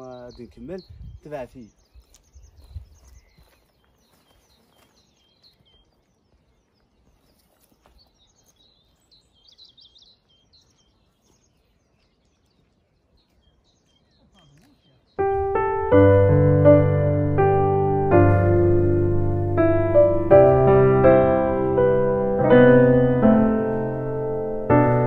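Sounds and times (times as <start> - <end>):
small birds chirping and trilling: 0.0 - 15.5
low rumble: 15.3 - 25.0.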